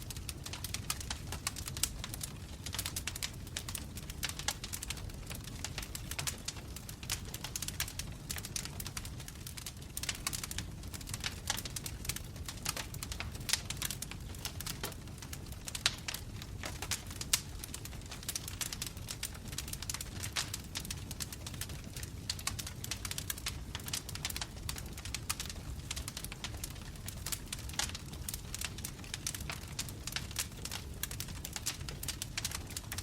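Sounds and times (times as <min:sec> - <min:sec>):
flames rumbling: 0:00.0 - 0:33.0
logs crackling and popping: 0:00.0 - 0:33.0.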